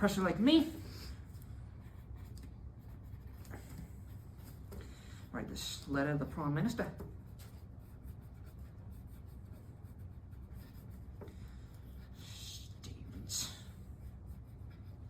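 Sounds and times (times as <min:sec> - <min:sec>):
low room hum: 0:00.0 - 0:15.0
pen scratching on paper: 0:01.7 - 0:04.8, 0:06.8 - 0:15.0.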